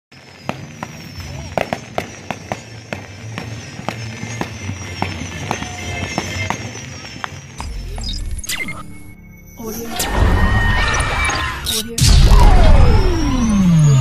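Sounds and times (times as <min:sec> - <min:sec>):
fireworks popping and crackling: 0:00.1 - 0:08.4
music playing: 0:02.1 - 0:14.0
deep rumble: 0:07.6 - 0:14.0.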